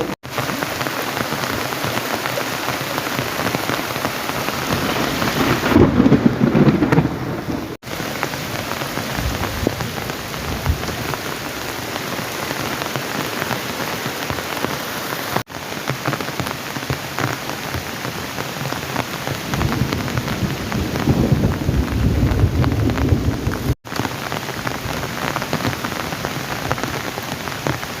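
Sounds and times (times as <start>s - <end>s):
heavy rain: 0.0s - 28.0s
rolling thunder: 4.4s - 7.8s, 19.5s - 23.8s.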